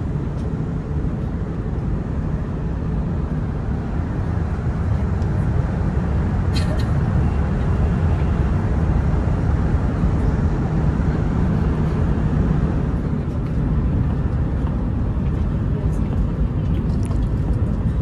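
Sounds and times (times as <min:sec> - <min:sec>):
high-speed train rumbling: 0:00.0 - 0:18.0.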